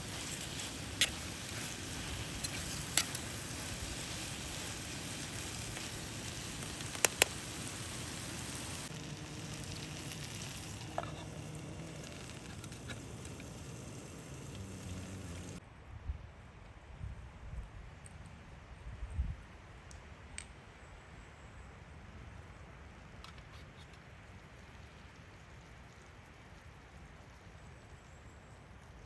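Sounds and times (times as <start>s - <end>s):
food sizzling in a pan: 0.0s - 15.6s
sharp pops of frying: 0.0s - 15.6s.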